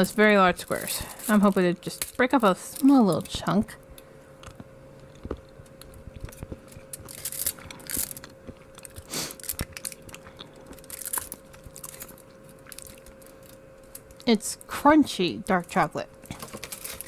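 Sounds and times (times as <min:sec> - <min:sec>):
faint steady hum: 0:00.0 - 0:17.0
person crunching chocolate: 0:04.4 - 0:14.3.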